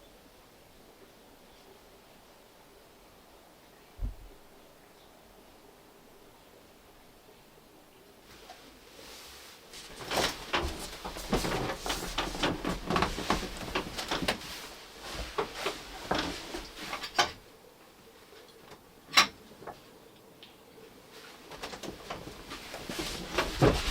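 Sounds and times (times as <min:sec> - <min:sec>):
objects knocking and rustling: 0:09.8 - 0:17.4, 0:21.5 - 0:23.9.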